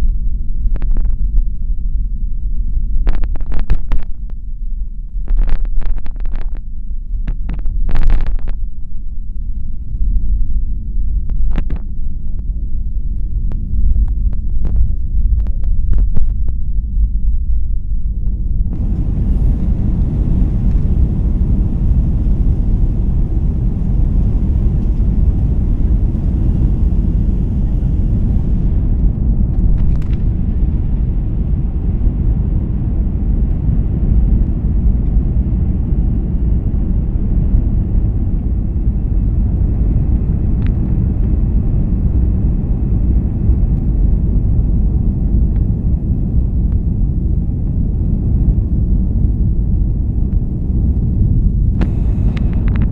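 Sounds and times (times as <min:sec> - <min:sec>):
jet engines rumbling: 0:09.4 - 0:52.9
hiss: 0:51.8 - 0:52.7.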